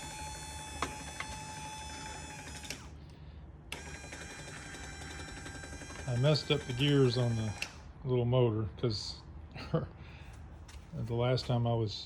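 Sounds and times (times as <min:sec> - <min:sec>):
electric motor whining through gears: 0:00.0 - 0:02.9, 0:03.7 - 0:07.7.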